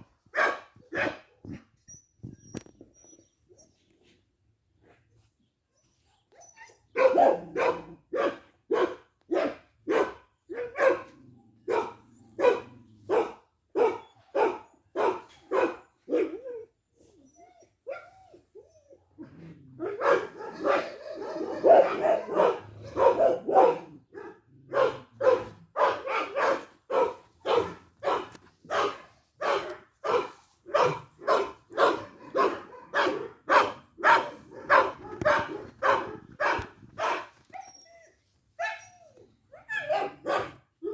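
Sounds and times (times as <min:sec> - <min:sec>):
dog barking: 0:00.3 - 0:01.3, 0:06.9 - 0:16.4, 0:19.8 - 0:37.3, 0:39.7 - 0:40.9.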